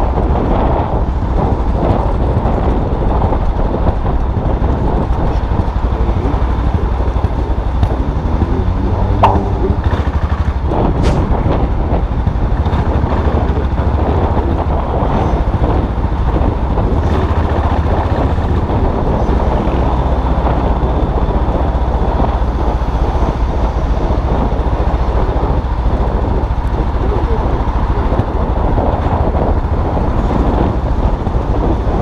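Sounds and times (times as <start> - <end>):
motorcycle engine rumbling: 3.4 - 22.8.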